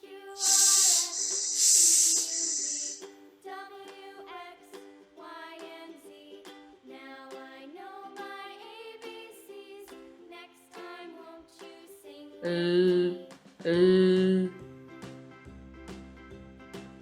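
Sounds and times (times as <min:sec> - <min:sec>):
light background music: 0:13.6 - 0:17.0.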